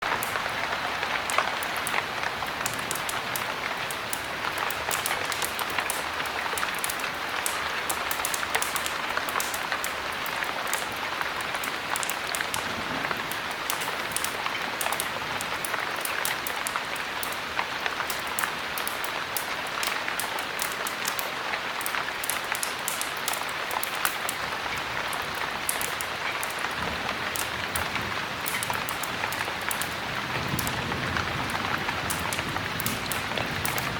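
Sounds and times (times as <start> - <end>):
heavy rain falling: 0.0 - 33.9
sharp little ticks: 2.6 - 12.7, 13.3 - 17.4, 25.1 - 30.8.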